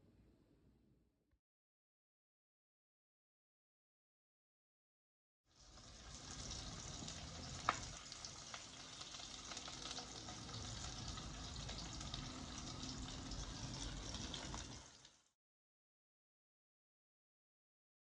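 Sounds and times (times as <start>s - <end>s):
prawns sizzling in a pan: 5.5s - 15.4s
wood fire crackling: 5.6s - 15.2s.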